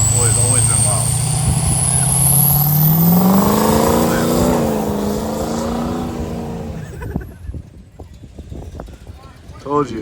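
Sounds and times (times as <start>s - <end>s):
car engine revving high: 0.0s - 7.1s.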